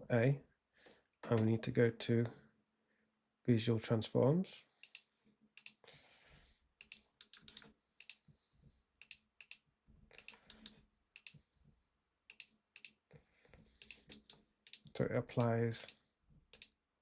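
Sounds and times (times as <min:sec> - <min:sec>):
computer keyboard and mouse clicking: 0:04.8 - 0:05.8, 0:06.8 - 0:08.3, 0:09.0 - 0:09.6, 0:10.2 - 0:11.5, 0:12.3 - 0:13.0, 0:13.8 - 0:16.8.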